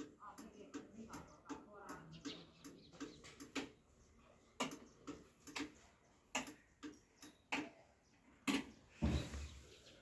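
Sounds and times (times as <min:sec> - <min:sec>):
sharp clicks: 0:00.0 - 0:03.8, 0:04.6 - 0:07.8.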